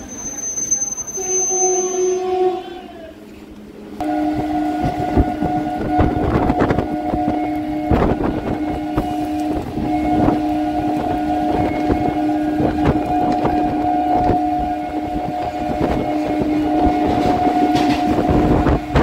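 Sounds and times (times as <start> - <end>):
electric train humming drone: 0.0 - 19.0
wheels clacking over rail joints: 15.2 - 19.0.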